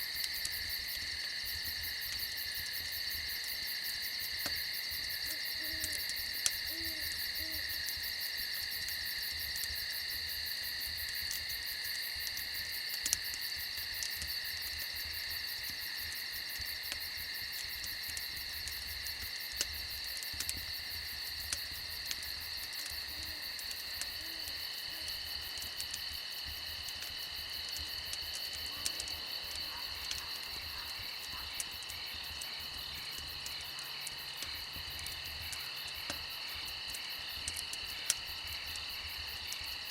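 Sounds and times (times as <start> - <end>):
campfire crackling: 0.0 - 39.9
crickets chirring: 0.0 - 39.9
faint owl hoots: 5.2 - 6.0, 6.6 - 7.7.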